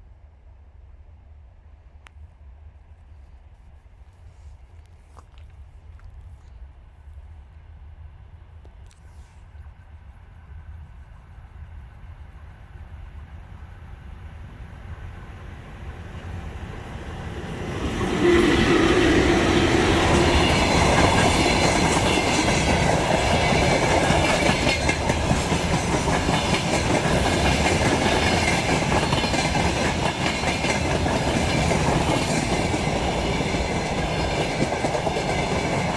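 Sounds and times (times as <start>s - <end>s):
electric train rumbling: 6.6s - 35.9s.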